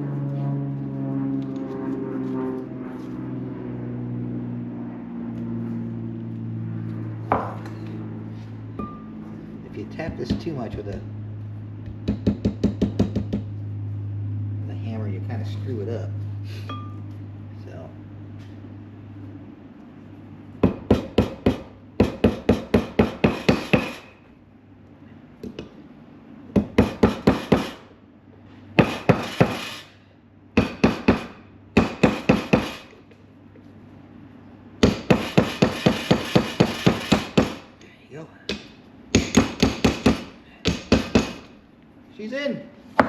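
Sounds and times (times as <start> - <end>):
hammer tapping metal: 20.6 - 24.1, 34.8 - 37.6, 38.5 - 41.5.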